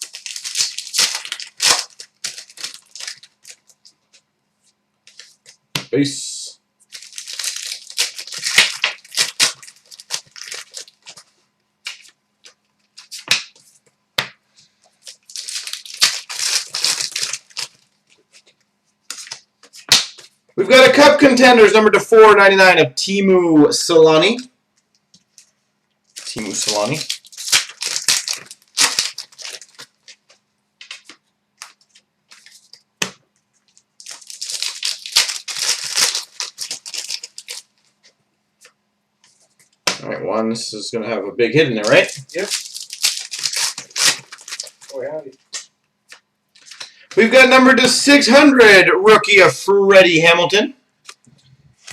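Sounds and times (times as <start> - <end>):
foil wrappers tearing and crinkling: 0.0 - 3.9, 6.8 - 13.6, 14.9 - 18.5, 19.1 - 20.3, 26.1 - 38.1, 41.8 - 48.2.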